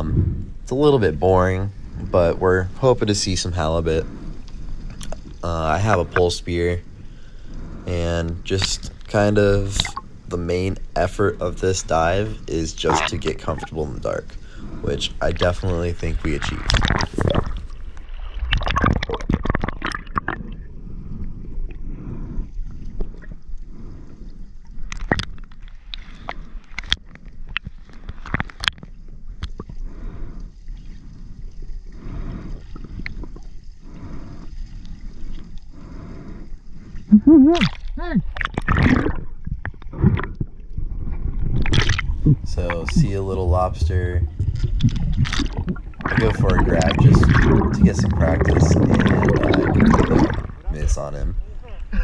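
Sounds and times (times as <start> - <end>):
underwater gurgling and sloshing: 0.0 - 52.0
water splashing: 0.7 - 6.8, 7.9 - 20.7, 37.1 - 40.6, 41.5 - 52.0
short underwater pulses: 7.8 - 17.8, 37.0 - 40.6, 41.5 - 52.0.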